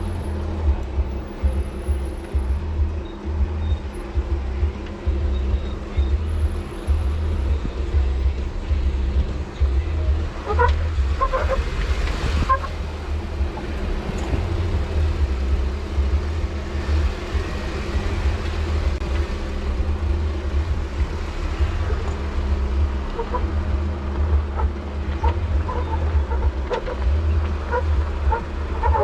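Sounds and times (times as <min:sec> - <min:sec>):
off-road vehicle engine running: 0:00.0 - 0:29.0.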